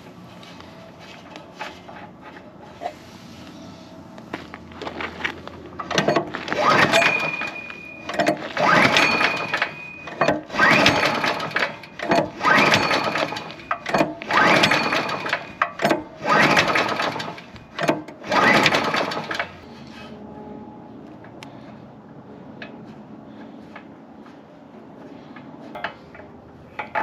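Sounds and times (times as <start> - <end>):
small engine cranking: 5.8 - 19.6.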